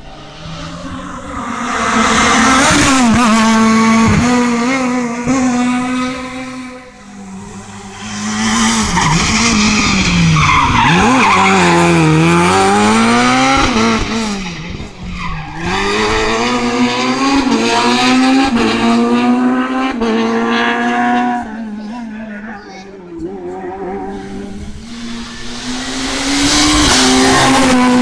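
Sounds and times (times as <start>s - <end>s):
rally car engine revving: 0.0s - 28.0s
tyres skidding and squealing: 7.0s - 16.8s.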